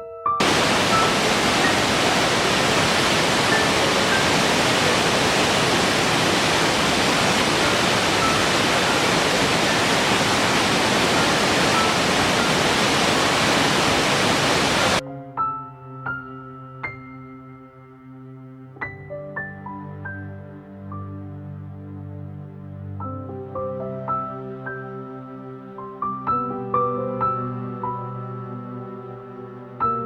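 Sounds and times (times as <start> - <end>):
rush of falling water: 0.4 - 15.0.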